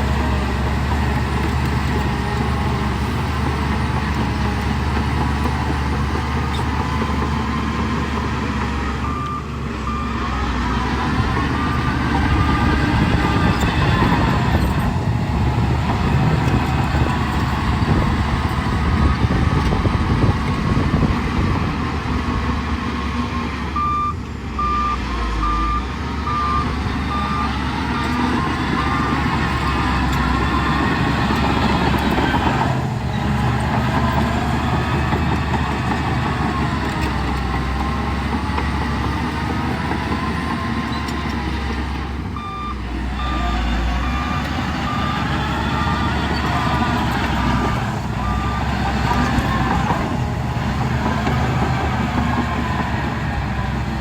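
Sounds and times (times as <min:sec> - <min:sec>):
diesel machinery running: 0:00.0 - 0:54.0
reversing alarm beeping: 0:08.8 - 0:14.9, 0:22.9 - 0:32.6, 0:42.3 - 0:50.2.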